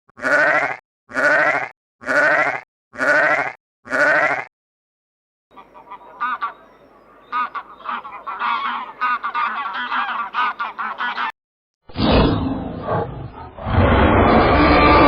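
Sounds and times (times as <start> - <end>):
wavering bleats: 0.2 - 4.5.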